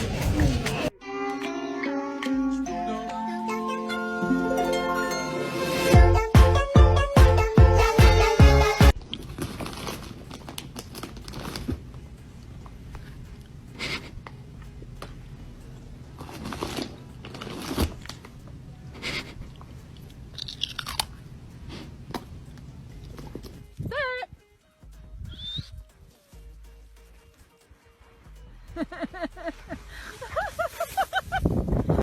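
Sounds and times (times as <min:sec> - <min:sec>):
animal chewing crunchy food: 0:16.1 - 0:23.6.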